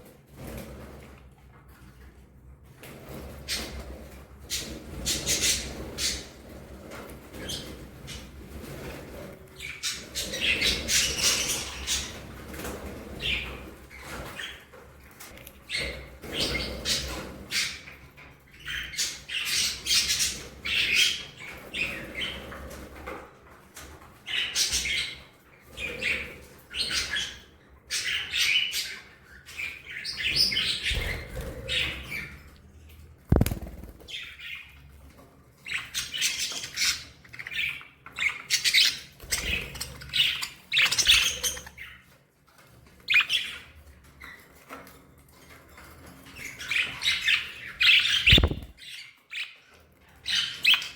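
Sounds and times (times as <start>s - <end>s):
budgerigars chirping and warbling: 4.5s - 6.6s, 7.3s - 14.7s, 15.6s - 22.8s, 24.2s - 32.5s, 35.6s - 42.2s, 42.9s - 44.7s, 45.8s - 50.9s
wing flaps: 33.3s - 34.2s, 48.2s - 48.8s
bird squawks: 47.9s - 48.8s.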